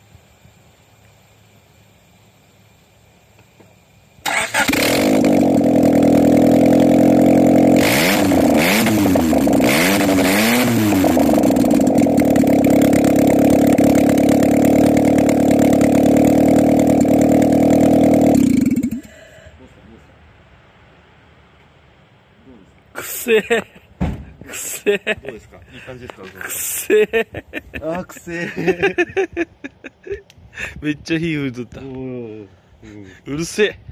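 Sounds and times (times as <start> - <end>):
loud car engine revving and idling: 4.6 - 19.1.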